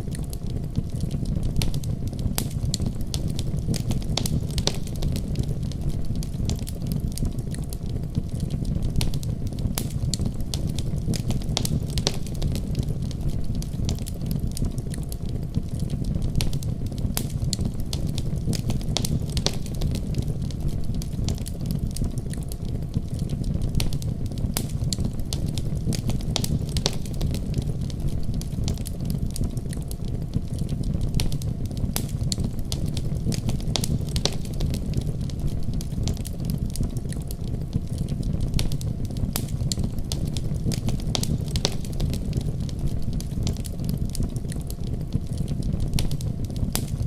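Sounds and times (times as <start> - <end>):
wood fire crackling and popping: 0.0 - 47.0
deep rumble of snowstorm: 15.5 - 22.1, 30.3 - 47.0.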